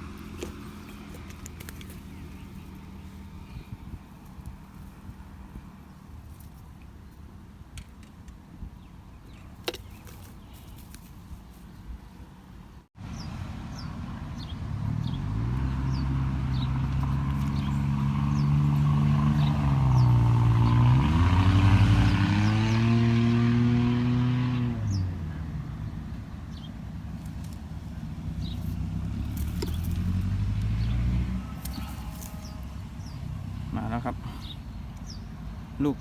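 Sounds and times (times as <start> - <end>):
engine passing by: 0.0 - 6.5, 13.0 - 36.0.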